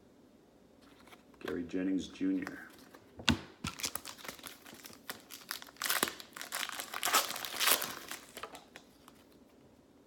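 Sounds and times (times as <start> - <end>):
plastic wrapper crinkling: 3.6 - 9.4.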